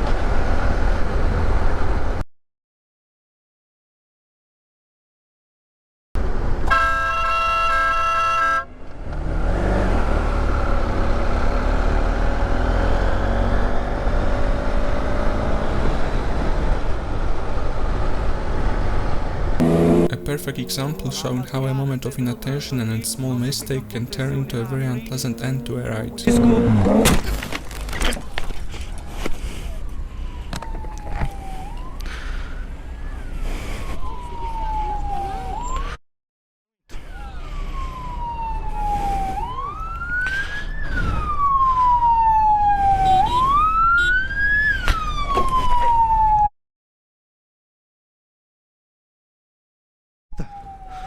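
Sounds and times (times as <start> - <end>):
vehicle running on road: 0.0 - 2.2, 6.2 - 36.0, 36.9 - 46.5
low traffic rumble: 6.2 - 35.6
vehicle horn blast: 6.6 - 8.7
siren wailing: 28.2 - 36.0, 36.9 - 46.5, 50.4 - 51.0.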